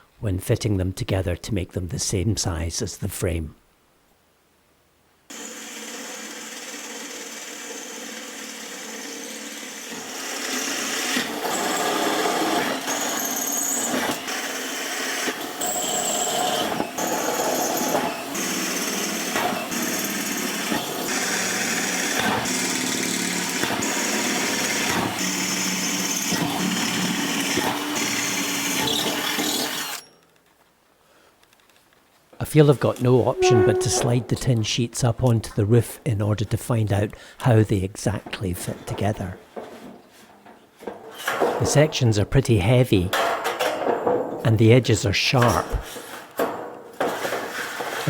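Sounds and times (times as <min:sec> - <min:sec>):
power tool running: 0:05.3 - 0:30.0.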